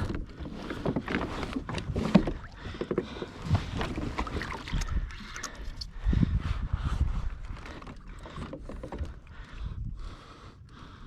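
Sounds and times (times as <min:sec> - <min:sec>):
water sloshing against hull: 0:00.0 - 0:11.0.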